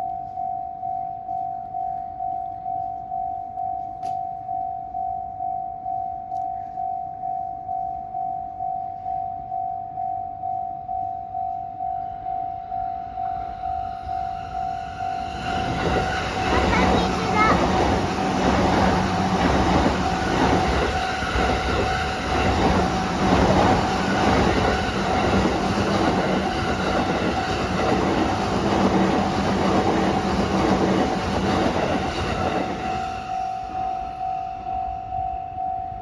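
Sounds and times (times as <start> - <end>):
crossing warning bell ringing: 0.0 - 36.0
train wheel and rail noise: 11.6 - 36.0.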